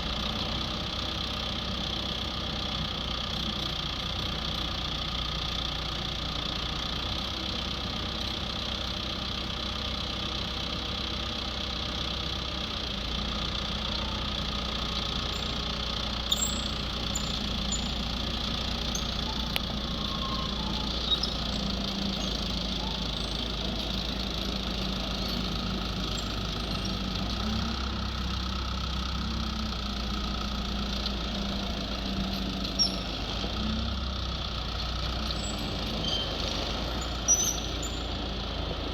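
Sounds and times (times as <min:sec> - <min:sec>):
skid steer engine running: 0:00.0 - 0:38.9.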